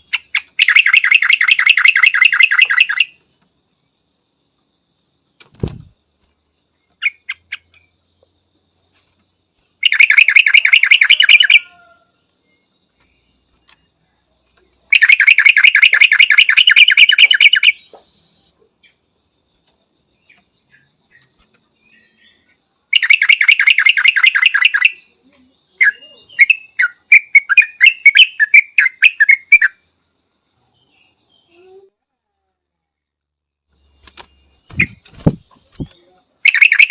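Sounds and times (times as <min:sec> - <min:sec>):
bird chattering and chirping: 0:00.0 - 0:03.2, 0:06.9 - 0:07.9, 0:09.8 - 0:11.8, 0:14.8 - 0:18.1, 0:22.0 - 0:29.8, 0:34.0 - 0:36.9.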